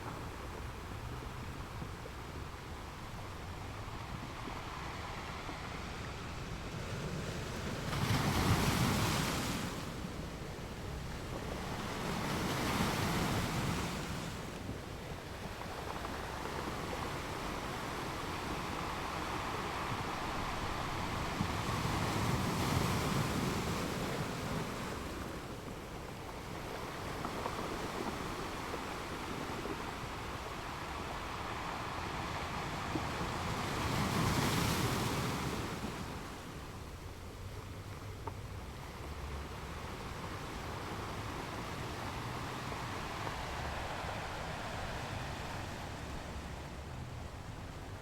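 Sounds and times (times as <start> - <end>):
ocean waves washing in: 38.4 - 48.0.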